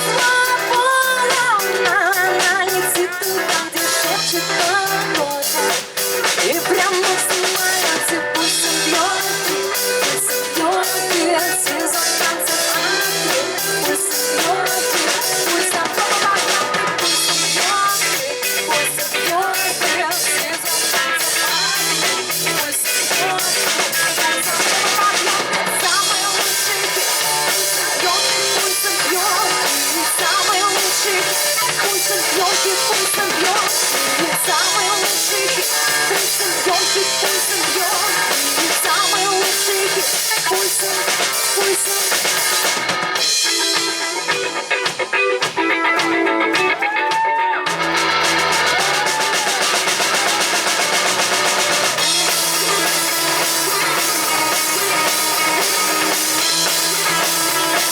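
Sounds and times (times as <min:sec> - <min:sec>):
drum kit steady beat: 0:00.0 - 0:57.9
live rock band playing: 0:00.0 - 0:57.9.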